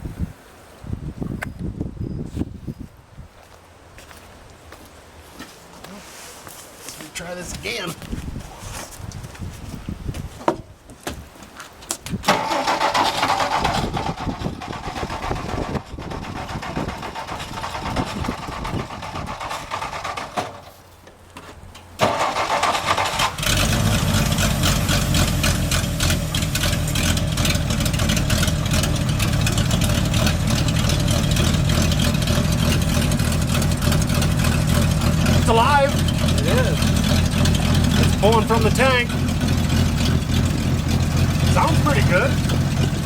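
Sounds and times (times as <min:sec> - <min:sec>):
truck engine cranking: 0:12.2 - 0:21.0, 0:21.6 - 0:43.0
truck engine running: 0:12.3 - 0:21.0, 0:21.8 - 0:43.0.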